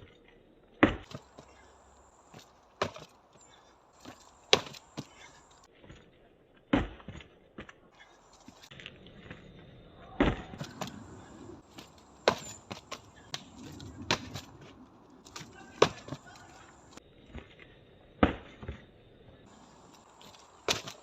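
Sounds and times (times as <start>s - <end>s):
strikes knocking on tree trunk: 4.0s - 5.2s, 11.8s - 13.5s, 15.3s - 16.9s, 20.6s - 21.0s.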